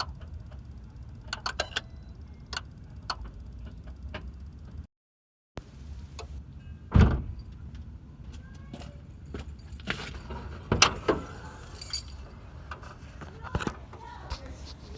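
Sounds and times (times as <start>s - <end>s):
loud thump: 6.9s - 7.4s
car keys jangling: 8.8s - 12.4s.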